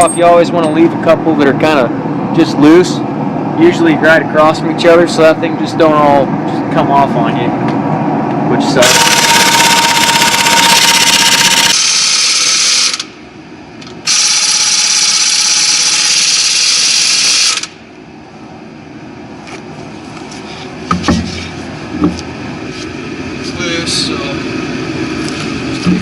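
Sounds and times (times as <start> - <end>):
power tool spinning: 8.8 - 13.1, 14.0 - 17.8.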